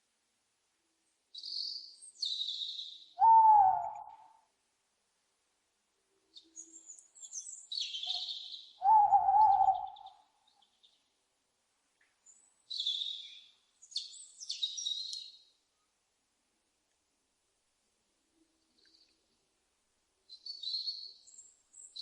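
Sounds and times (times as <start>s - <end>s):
owl screeching: 3.2s - 4.0s, 8.8s - 10.0s.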